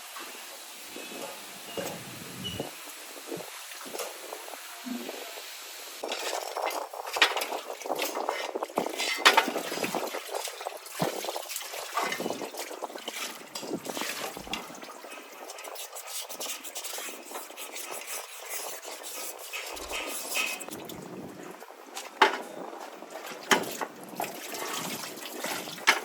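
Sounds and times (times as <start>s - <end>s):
liquid splashing and trickling: 6.0s - 22.0s, 22.6s - 26.0s.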